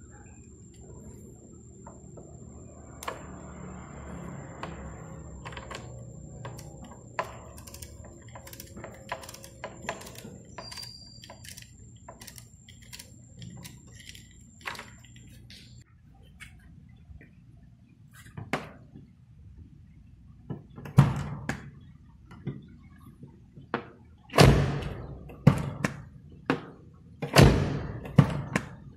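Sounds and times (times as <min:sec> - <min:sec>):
high-pitched whine: 0:00.0 - 0:15.8.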